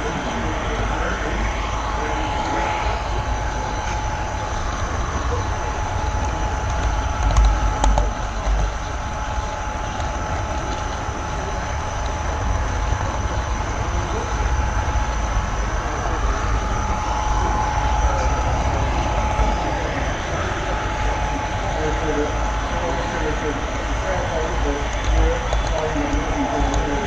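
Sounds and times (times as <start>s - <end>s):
thin steady whine: 0.0s - 27.0s.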